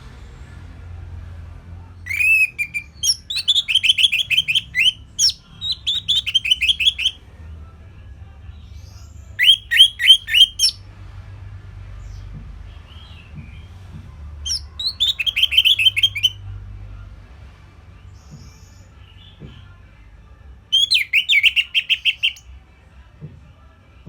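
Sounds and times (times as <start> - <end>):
bird singing whistled notes: 2.1 - 7.2, 9.3 - 10.8, 14.5 - 16.4, 20.7 - 22.4.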